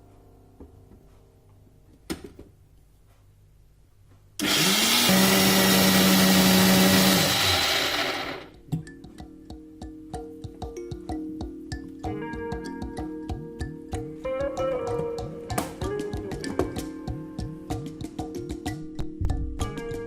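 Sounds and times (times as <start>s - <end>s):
blender motor whirring: 4.4s - 8.5s.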